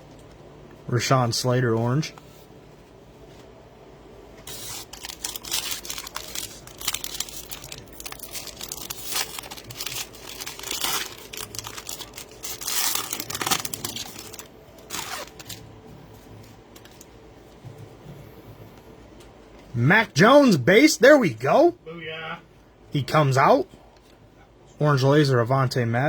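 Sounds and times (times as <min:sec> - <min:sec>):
wrappers tearing and crinkling: 0:04.4 - 0:15.7.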